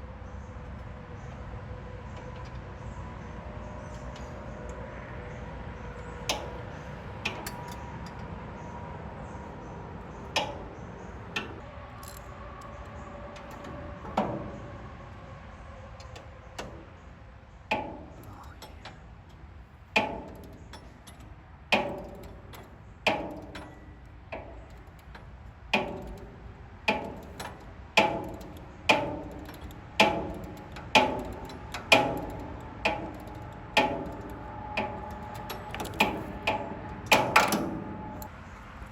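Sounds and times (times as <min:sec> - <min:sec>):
hand tools clicking on metal: 0:06.3 - 0:08.3, 0:10.0 - 0:14.5, 0:17.7 - 0:19.4, 0:20.0 - 0:38.3.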